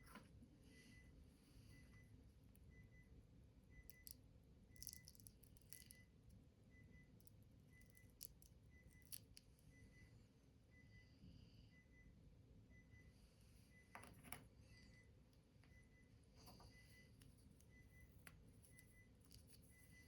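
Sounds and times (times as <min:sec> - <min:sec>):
low room hum: 0:00.0 - 0:20.0
small objects clicking and rattling: 0:04.8 - 0:06.0.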